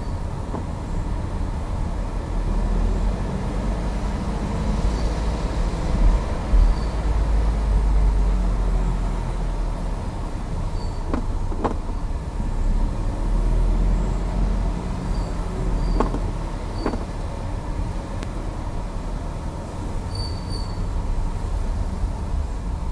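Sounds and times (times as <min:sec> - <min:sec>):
car engine rumble: 0:00.0 - 0:22.9
steering clicks: 0:00.1 - 0:01.2, 0:10.2 - 0:12.2, 0:14.7 - 0:17.4.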